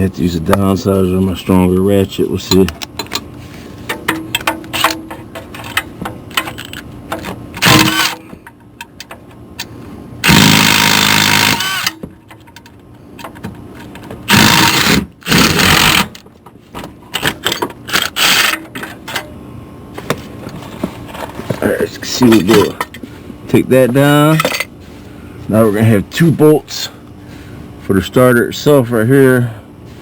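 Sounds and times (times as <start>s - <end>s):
powered wrench buzzing: 7.6s - 8.2s, 10.2s - 12.0s, 14.3s - 16.2s, 17.9s - 18.7s.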